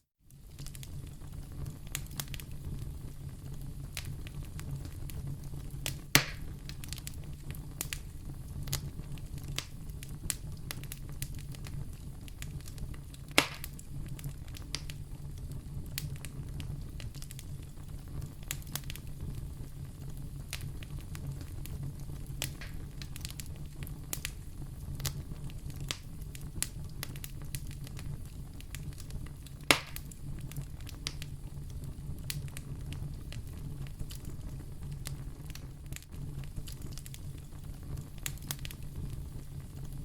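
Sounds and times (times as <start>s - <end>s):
wood fire crackling: 0.3s - 40.0s
sharp loud fire pops: 6.2s - 6.5s, 13.3s - 13.8s, 29.7s - 30.1s.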